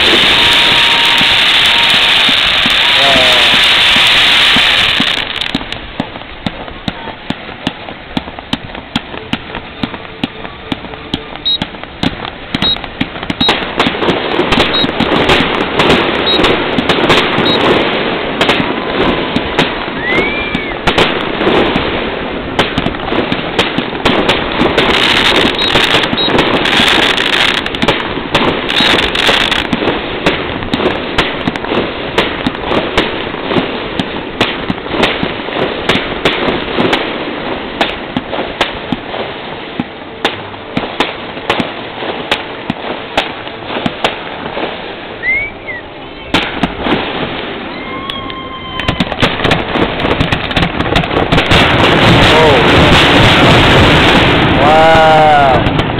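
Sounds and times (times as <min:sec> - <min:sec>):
firework whistle: 0:00.0 - 0:05.6, 0:09.1 - 0:13.8, 0:14.4 - 0:17.9, 0:19.4 - 0:21.7, 0:24.2 - 0:29.7, 0:45.2 - 0:50.3
fireworks bangs and cracks: 0:00.0 - 0:55.9.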